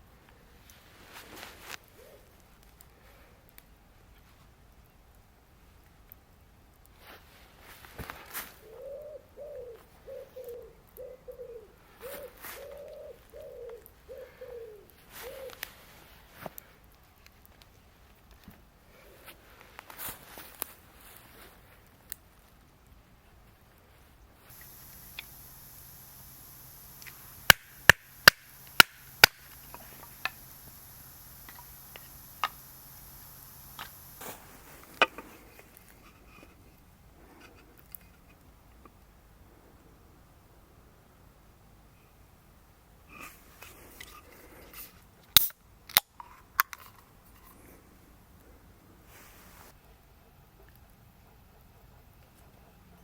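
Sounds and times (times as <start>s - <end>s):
bird hooting coos: 2.0s - 2.3s, 8.6s - 15.6s, 24.6s - 34.2s
sharp clicks: 24.5s - 34.3s.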